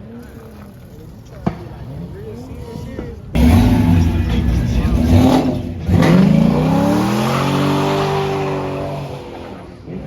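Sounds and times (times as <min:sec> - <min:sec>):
car engine revving: 0:03.4 - 0:10.0.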